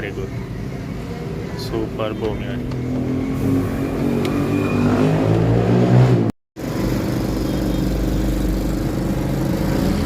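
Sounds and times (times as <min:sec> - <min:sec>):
engine revving: 0:02.2 - 0:10.0.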